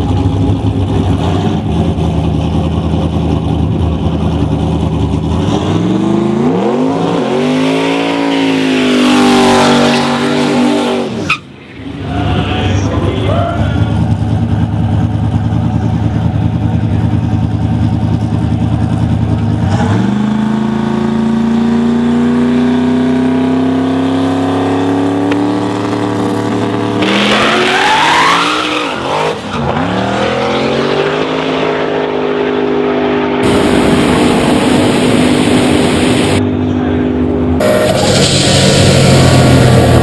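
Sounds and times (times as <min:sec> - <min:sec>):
truck engine revving: 0:00.0 - 0:40.0.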